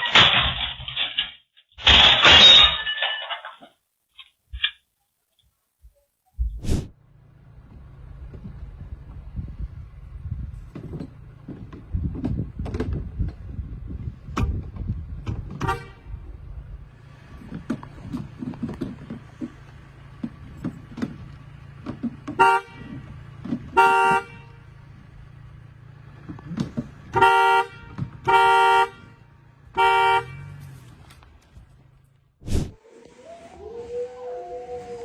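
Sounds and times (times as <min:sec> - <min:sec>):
knocks and clattering: 0:00.0 - 0:03.8, 0:17.4 - 0:23.8
car horn honking: 0:15.6 - 0:16.2, 0:22.3 - 0:24.8, 0:27.0 - 0:30.8.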